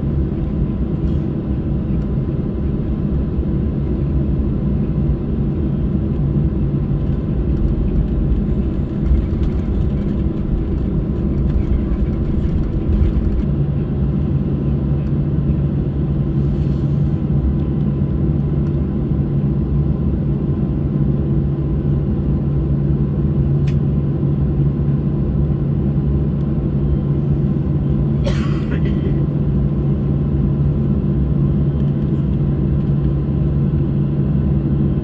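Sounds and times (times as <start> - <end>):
steady cabin hum: 0.0 - 14.9
jet engines idling rumble: 0.0 - 35.0.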